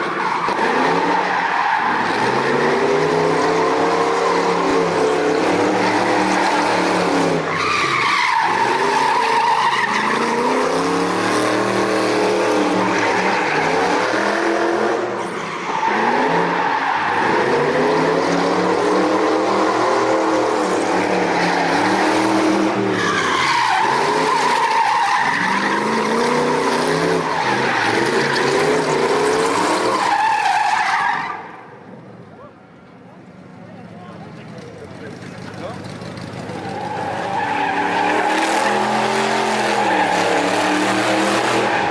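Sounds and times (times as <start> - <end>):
car engine revving: 0.0 - 30.2, 34.5 - 41.9
tyres squealing: 20.6 - 31.5, 35.9 - 41.9.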